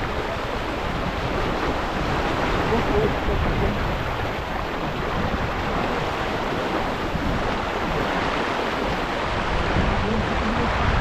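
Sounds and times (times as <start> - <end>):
water rushing along boat hull: 0.0 - 11.0
wind buffeting microphone: 0.0 - 11.0.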